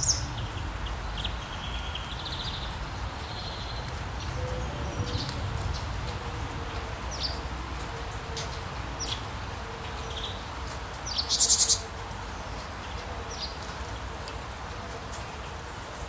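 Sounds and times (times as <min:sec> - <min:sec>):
birds chirping: 0:00.0 - 0:13.7.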